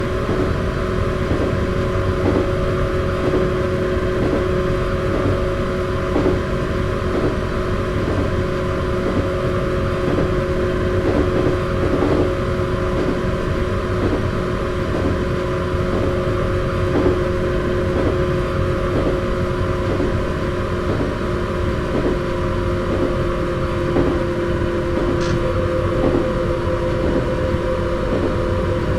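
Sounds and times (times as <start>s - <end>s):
electric train rumbling: 0.0s - 28.9s
wheels knocking on rail joints: 0.1s - 16.2s, 18.9s - 27.3s
two-note hum: 21.8s - 28.9s.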